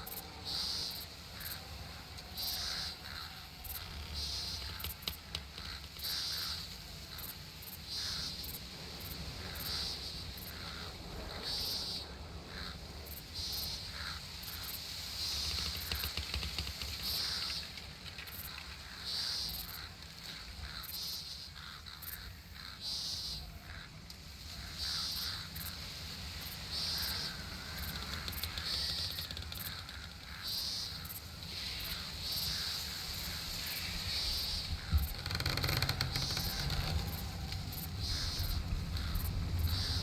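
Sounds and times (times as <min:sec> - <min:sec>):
low rumble: 0:36.2 - 0:40.0.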